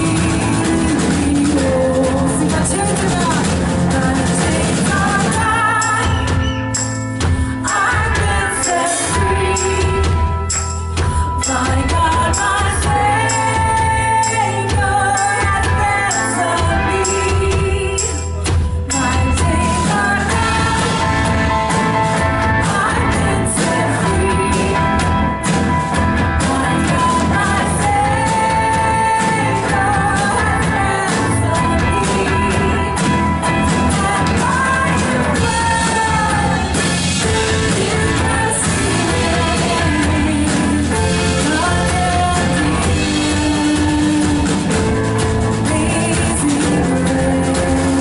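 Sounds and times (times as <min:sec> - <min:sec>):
lead vocals singing: 0:00.0 - 0:06.6, 0:07.5 - 0:10.4, 0:18.9 - 0:25.3, 0:26.0 - 0:44.7
band playing rock music: 0:00.0 - 0:48.0.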